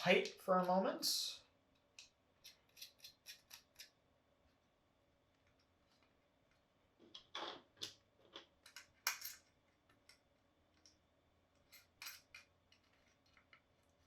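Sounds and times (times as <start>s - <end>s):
metal hardware clicks and clinks: 8.6s - 9.5s, 11.7s - 13.0s.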